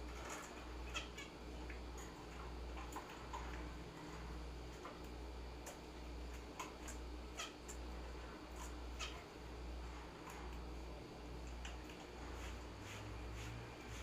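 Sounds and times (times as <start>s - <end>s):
steady low hum: 0.0s - 14.0s
birds chirping: 0.3s - 4.1s.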